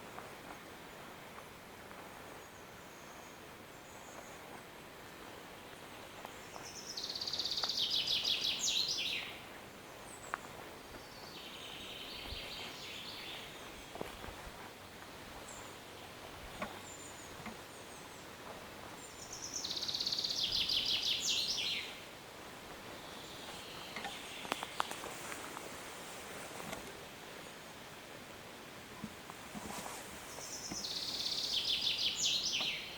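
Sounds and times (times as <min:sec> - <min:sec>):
soft bird calls: 0:02.2 - 0:25.8, 0:28.9 - 0:32.9
songbird trilling song: 0:05.6 - 0:14.4, 0:15.4 - 0:22.1, 0:22.8 - 0:25.1, 0:30.3 - 0:32.9.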